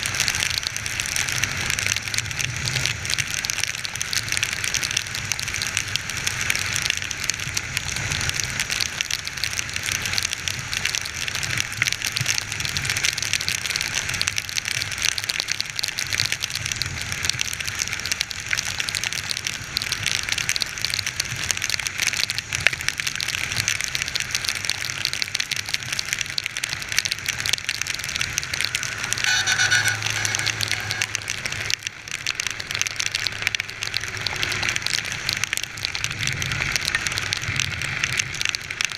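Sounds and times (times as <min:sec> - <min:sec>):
heavy rain pattering: 0:00.0 - 0:38.9
brief pitched tone: 0:28.9 - 0:31.4.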